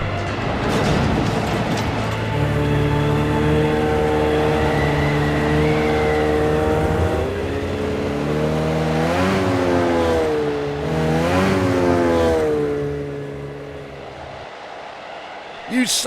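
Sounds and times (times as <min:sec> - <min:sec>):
cartoon truck engine revving: 0:02.3 - 0:14.3.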